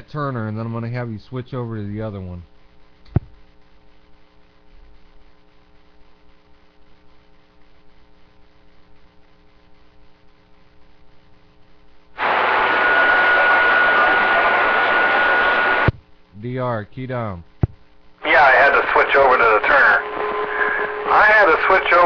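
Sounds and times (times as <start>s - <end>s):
faint electrical hum: 0.0s - 22.0s
radio static with whistle: 12.2s - 15.9s, 18.2s - 22.0s.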